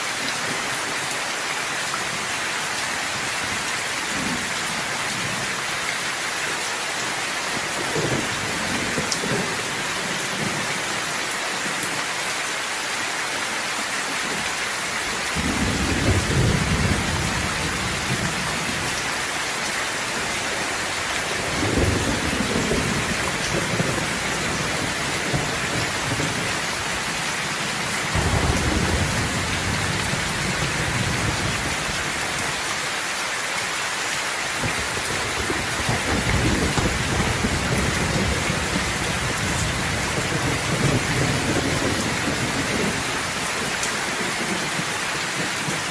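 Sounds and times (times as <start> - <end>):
rain hissing: 0.0 - 45.9
deep thunder rolls: 21.2 - 26.5, 28.1 - 32.0, 34.7 - 43.4.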